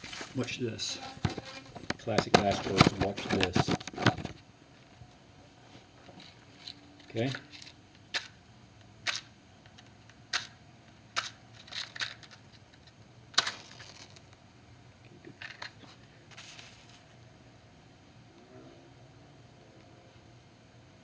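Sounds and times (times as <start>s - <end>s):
small objects clicking and scraping: 0.0s - 4.4s, 6.1s - 8.4s, 11.2s - 14.4s, 15.2s - 17.2s
faint steady low hum: 0.0s - 21.0s.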